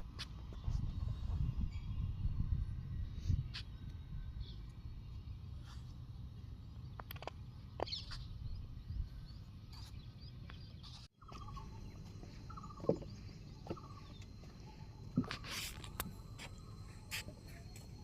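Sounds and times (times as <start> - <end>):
bird pulsed calls: 7.8 - 18.0.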